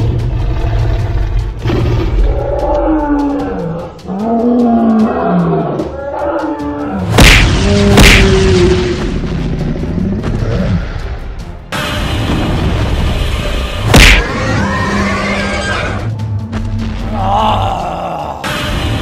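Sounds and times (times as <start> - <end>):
loud impacts: 7.1 - 9.3, 13.8 - 14.3.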